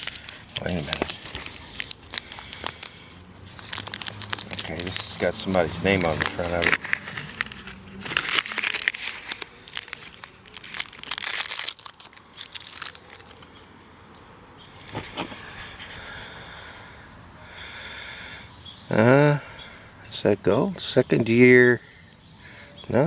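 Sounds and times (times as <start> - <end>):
wrapping crinkling and rustling: 0.0 - 13.8.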